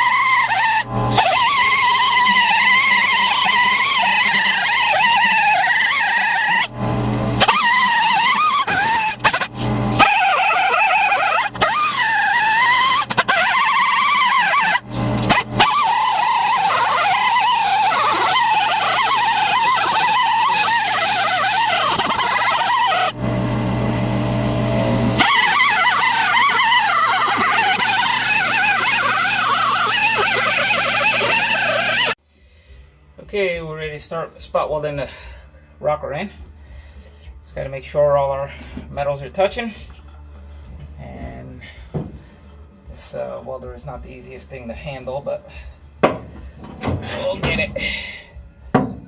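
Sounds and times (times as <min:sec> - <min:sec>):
grinder screeching on sheet metal: 0:00.0 - 0:06.7, 0:07.3 - 0:23.2, 0:24.8 - 0:32.2, 0:46.5 - 0:48.2
steady low hum: 0:00.1 - 0:49.0.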